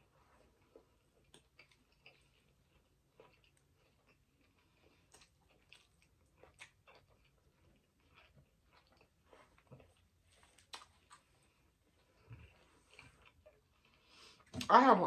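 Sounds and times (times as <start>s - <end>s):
person chewing food: 0.0s - 14.6s.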